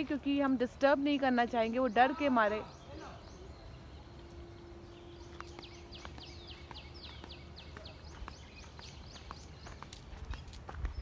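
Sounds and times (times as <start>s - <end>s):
bird calling high notes: 1.6s - 8.8s.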